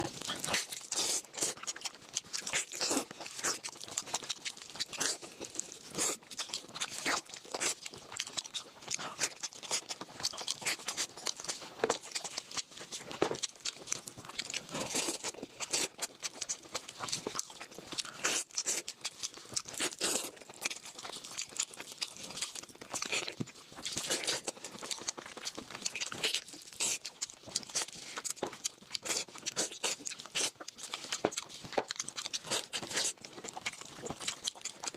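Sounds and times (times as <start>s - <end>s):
crunchy food being chewed: 0.0s - 34.9s.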